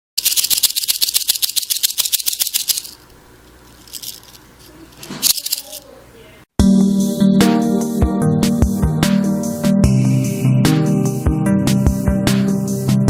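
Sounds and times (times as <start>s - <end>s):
rattlesnake rattling: 0.2s - 5.9s.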